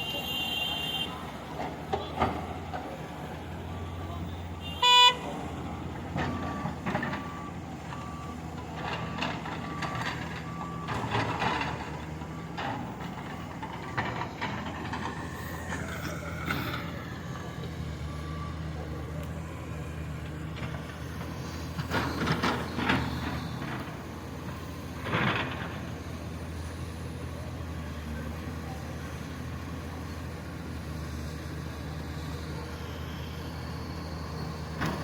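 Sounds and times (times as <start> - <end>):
heavy diesel machine running: 0.0 - 35.0
reversing alarm beeps: 6.2 - 11.7, 15.8 - 19.2.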